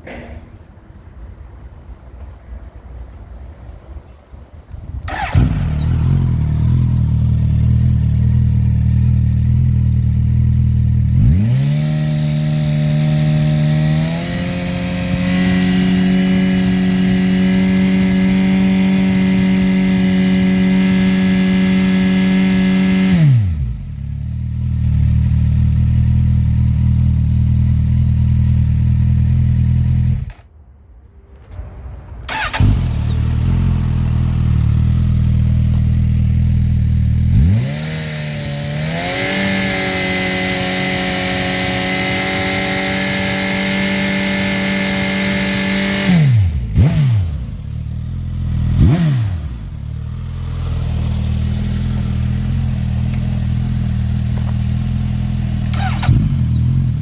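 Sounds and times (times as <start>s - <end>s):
motorcycle engine revving: 5.0s - 30.4s, 32.2s - 57.0s.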